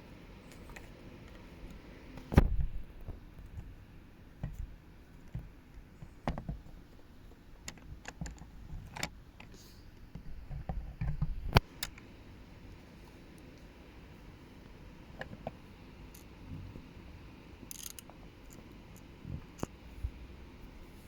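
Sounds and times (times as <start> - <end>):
plastic toy bricks clicking: 17.7 - 18.6.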